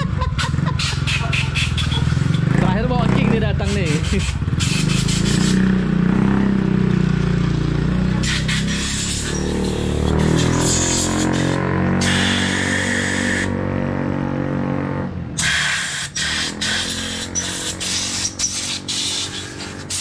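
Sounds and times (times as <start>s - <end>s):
motorcycle engine running: 0.0s - 20.0s
sharp hissing blasts: 3.7s - 5.7s, 8.2s - 13.5s, 15.4s - 20.0s.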